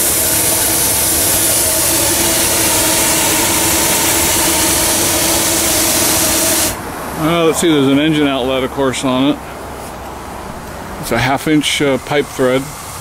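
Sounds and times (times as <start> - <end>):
steam hissing from boiler: 0.0 - 7.9, 11.0 - 13.0.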